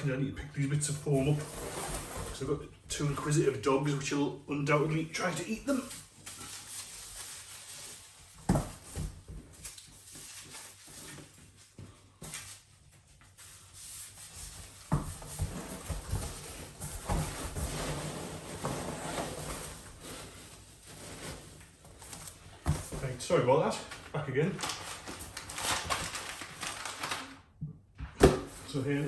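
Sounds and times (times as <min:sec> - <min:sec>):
packing foam rustling: 0:24.4 - 0:27.3.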